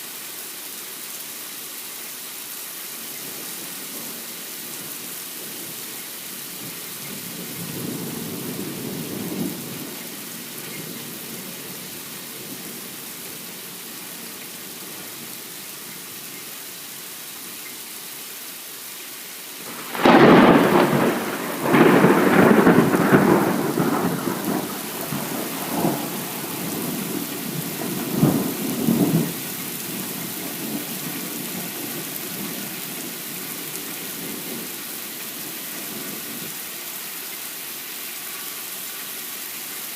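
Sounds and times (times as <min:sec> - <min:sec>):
rain hissing: 0:00.0 - 0:39.9
loud thunderclap: 0:19.7 - 0:30.0
rumble of thunder: 0:19.7 - 0:34.7.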